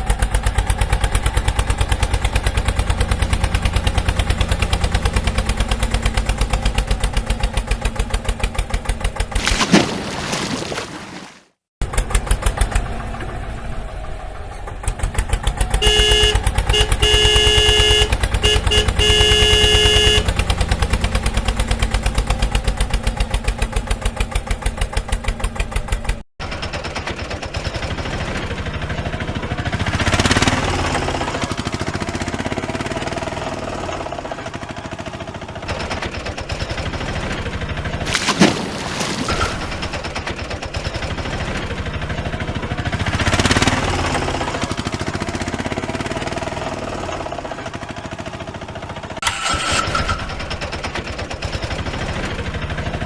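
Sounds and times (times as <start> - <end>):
tractor engine chugging: 0.0 - 9.4, 11.8 - 38.0, 39.3 - 53.0
rough noisy engine: 0.0 - 10.1, 11.8 - 53.0
vehicle horn blasts: 15.8 - 20.4.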